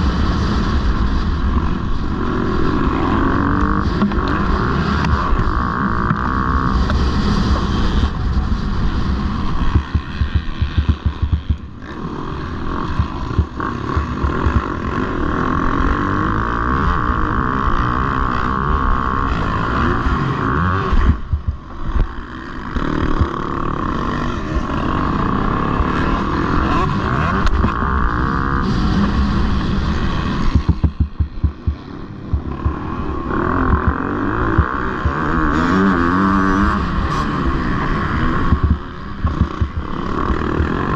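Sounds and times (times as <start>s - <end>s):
motocross bike engines revving: 0.0s - 40.9s.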